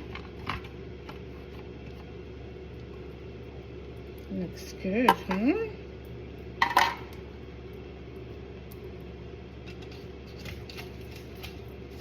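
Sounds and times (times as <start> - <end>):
steady low hum: 0.0 - 12.0
kitchenware clattering: 6.6 - 7.1.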